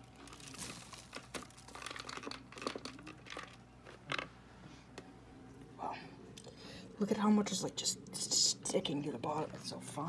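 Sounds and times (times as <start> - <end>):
crinkling and rustling by hand: 0.0 - 5.7.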